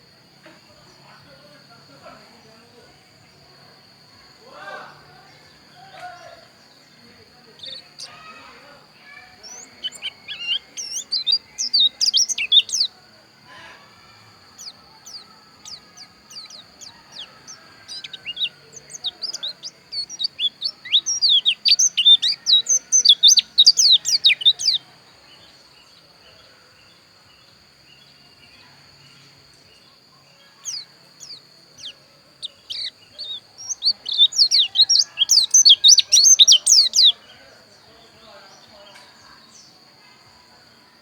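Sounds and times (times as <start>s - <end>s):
bird twittering song: 0.0s - 40.8s.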